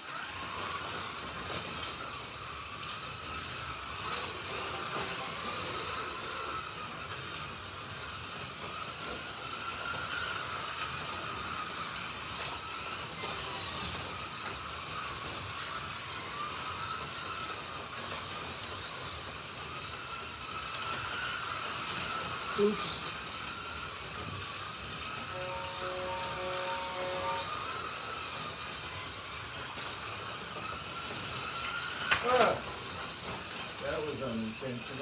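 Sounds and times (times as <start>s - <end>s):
slot car electric motors whining: 0.0s - 35.0s.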